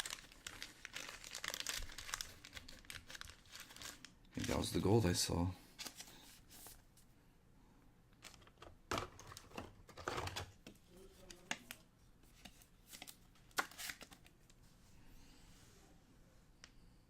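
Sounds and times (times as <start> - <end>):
card packaging rustling: 0.0 - 5.0, 5.7 - 6.8, 11.2 - 14.4.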